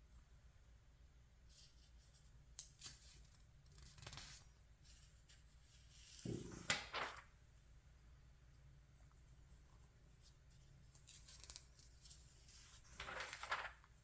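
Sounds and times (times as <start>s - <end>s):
paper pages rustling: 1.5s - 7.3s, 10.2s - 14.0s
page swishes: 6.1s - 7.3s, 11.4s - 13.9s.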